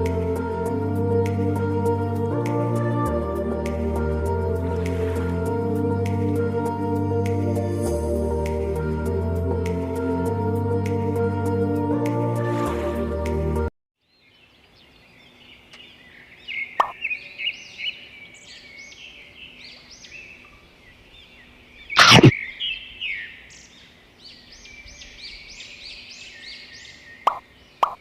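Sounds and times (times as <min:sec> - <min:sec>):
water splash: 0:04.6 - 0:06.4, 0:22.0 - 0:22.4
small birds chirping: 0:14.0 - 0:28.0.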